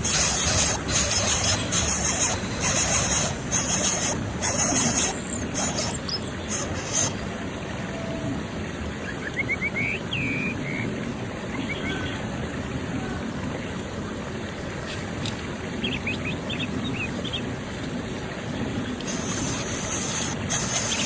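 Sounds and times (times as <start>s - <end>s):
bursts of high hiss: 0.0s - 7.2s, 19.1s - 21.0s.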